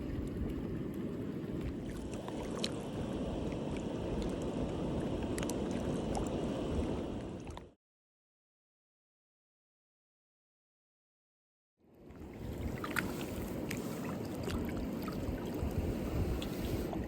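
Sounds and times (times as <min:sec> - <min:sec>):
small splashes and ticks: 0:00.0 - 0:02.9, 0:05.2 - 0:06.3, 0:12.6 - 0:15.8
water rushing: 0:00.0 - 0:07.8, 0:12.1 - 0:17.0.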